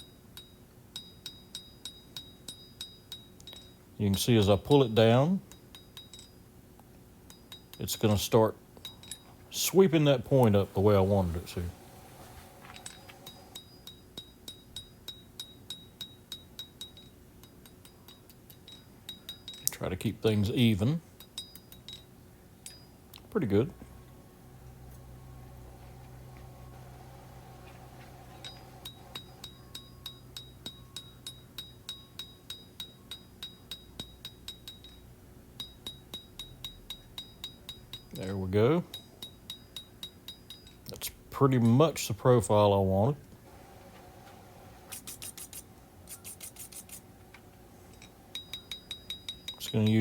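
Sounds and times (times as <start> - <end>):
low steady hum: 6.8 - 13.9, 17.8 - 33.1, 40.6 - 50.0.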